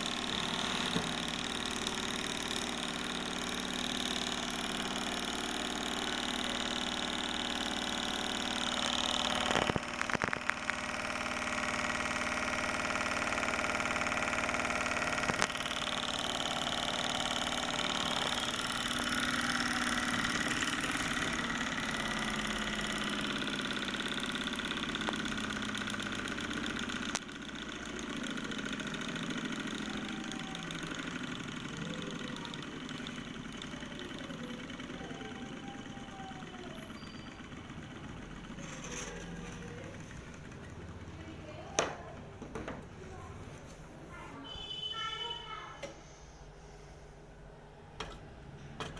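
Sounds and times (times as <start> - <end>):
small engine humming: 0.0 - 42.4.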